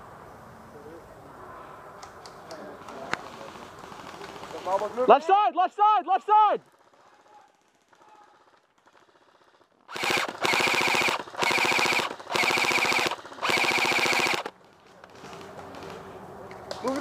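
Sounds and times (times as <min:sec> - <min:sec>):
airsoft gun firing full auto: 0:06.7 - 0:14.6.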